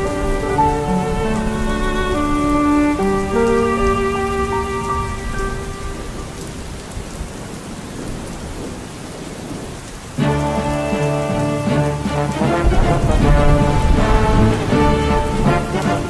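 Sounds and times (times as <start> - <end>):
sustained music notes: 0.0 - 6.6, 10.2 - 16.0
low rolling thunder: 0.0 - 16.0
steady rain: 0.0 - 16.0.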